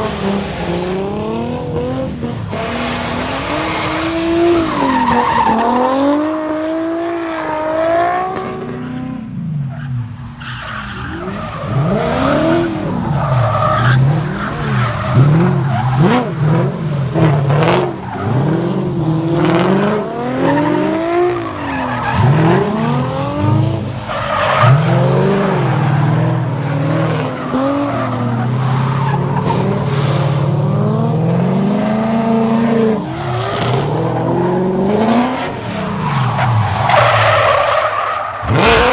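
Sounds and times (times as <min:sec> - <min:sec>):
car engines revving: 0:00.0 - 0:38.9
tyre noise on wet pavement: 0:09.8 - 0:38.9.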